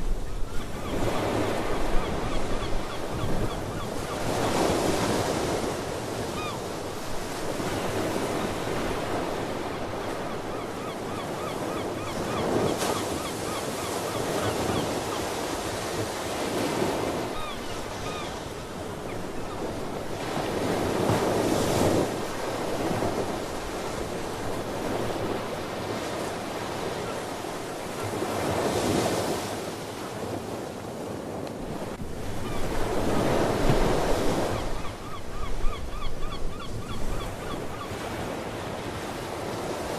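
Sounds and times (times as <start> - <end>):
wind and water rushing: 0.0 - 39.9
sea birds calling: 0.2 - 5.5, 6.2 - 6.7, 7.6 - 20.7, 32.3 - 39.1.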